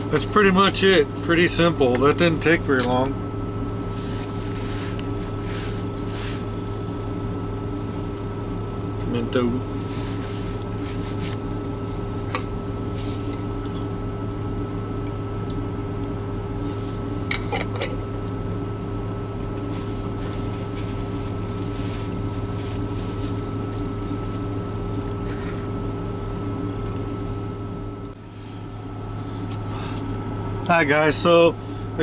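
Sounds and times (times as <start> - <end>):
low mechanical hum with whine: 0.0 - 32.0
handling clicks and rustles: 0.1 - 3.2, 19.4 - 25.7.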